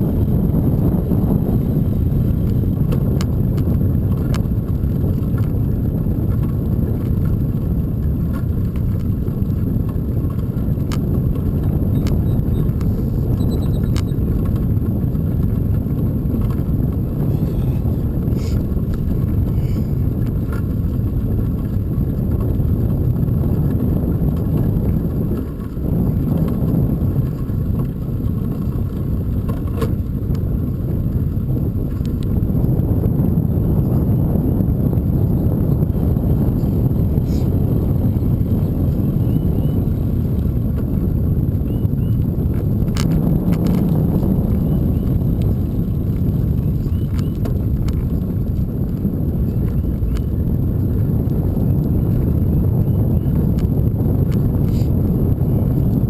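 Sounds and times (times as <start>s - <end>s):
bicycle road noise: 0.0s - 56.0s
wind on microphone: 0.0s - 56.0s
bike clicks and rattles: 1.9s - 32.6s, 39.8s - 52.5s, 53.4s - 54.9s.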